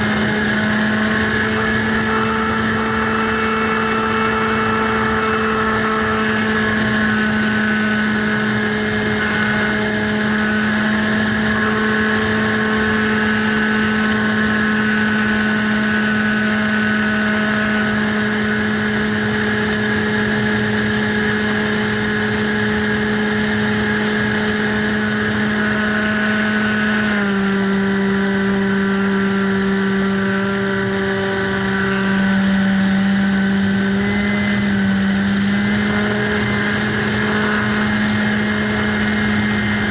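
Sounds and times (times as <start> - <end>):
model plane motor and propeller drone: 0.0 - 39.9.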